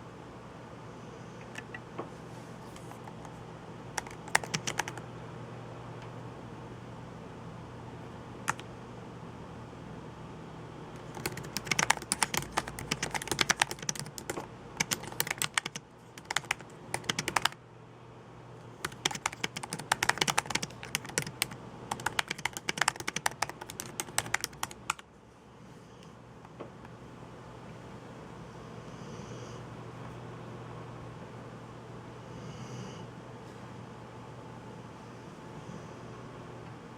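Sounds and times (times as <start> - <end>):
typing on a keyboard: 4.0 - 5.0, 8.5 - 8.7, 11.0 - 17.6, 18.8 - 25.0.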